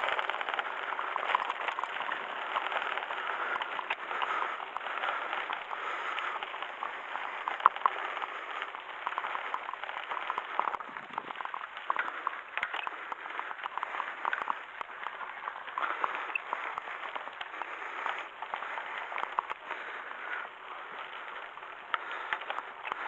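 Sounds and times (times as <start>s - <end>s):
bike clicks and rattles: 0.0s - 23.0s
tyres crunching on dirt: 0.0s - 23.0s.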